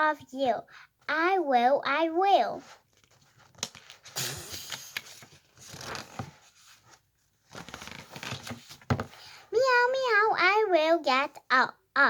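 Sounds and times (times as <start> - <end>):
paper page rustling: 2.6 - 9.4.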